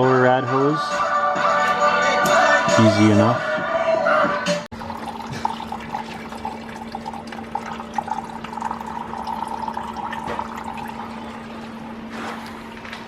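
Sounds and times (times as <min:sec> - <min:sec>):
coolant splashing into pan: 0:04.7 - 0:12.6
steady low hum: 0:04.8 - 0:13.0.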